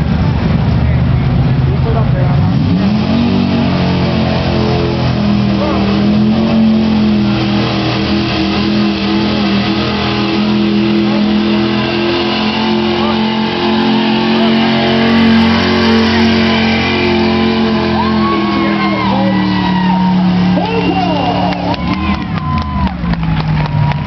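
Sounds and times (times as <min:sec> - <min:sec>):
truck engine at high revs: 0:00.0 - 0:24.0.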